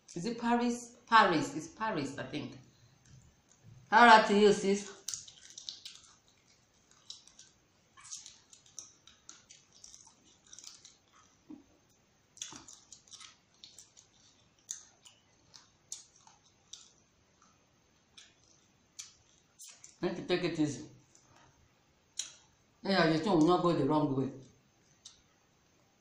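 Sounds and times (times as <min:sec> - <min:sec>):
wet mouth clicks and smacks: 0:04.9 - 0:17.5, 0:18.1 - 0:20.0, 0:22.1 - 0:22.6, 0:24.8 - 0:25.3.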